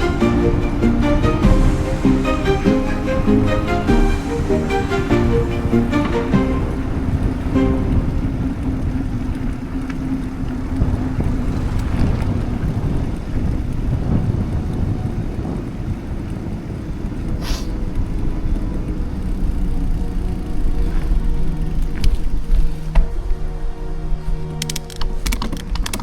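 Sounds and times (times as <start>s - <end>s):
bicycle tyre and road noise: 0.0s - 26.0s
wind buffeting microphone: 0.0s - 26.0s
brief hiss: 17.4s - 17.8s.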